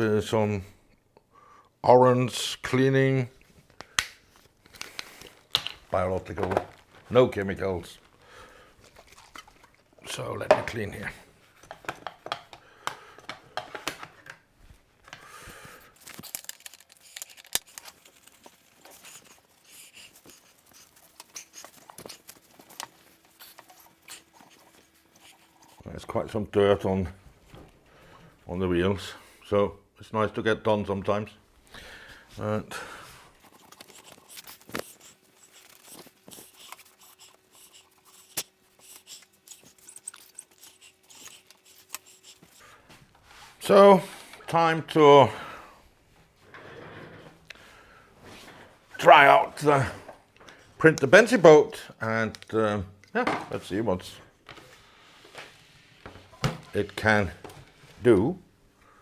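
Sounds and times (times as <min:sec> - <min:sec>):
light clicks and taps: 0:11.6 - 0:14.4
cloth wiping and rubbing: 0:33.3 - 0:44.4.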